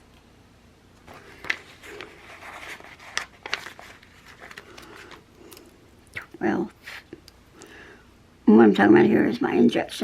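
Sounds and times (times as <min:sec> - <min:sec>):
paper rustling: 0:01.0 - 0:05.7.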